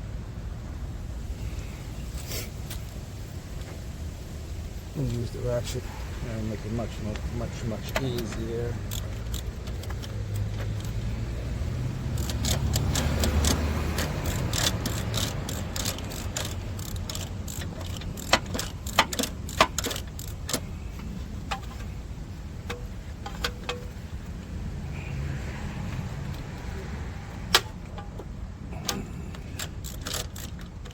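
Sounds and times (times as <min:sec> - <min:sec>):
ratchet clicking: 0:07.1 - 0:30.9
metal tools clinking: 0:27.6 - 0:30.9.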